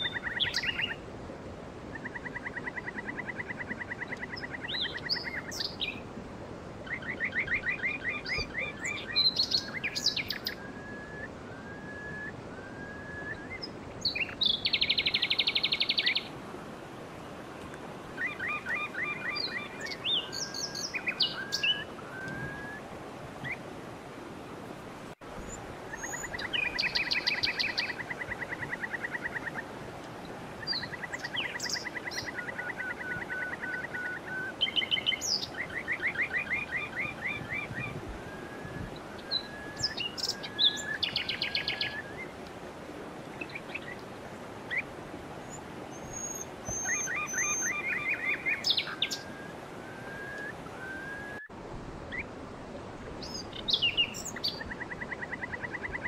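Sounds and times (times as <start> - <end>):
steady background hiss: 0.0 - 56.0
bird trills: 45.5 - 51.5.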